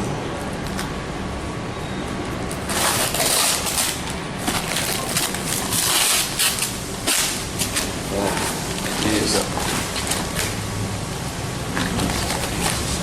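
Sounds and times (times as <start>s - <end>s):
packing material rustling: 2.5s - 10.7s, 11.8s - 13.0s.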